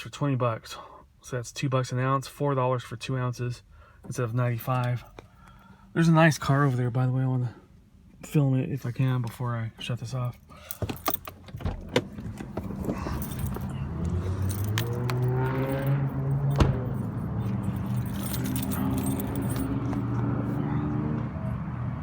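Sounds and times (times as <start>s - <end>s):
keys rattling: 10.4s - 20.2s
car engine running: 10.8s - 21.5s.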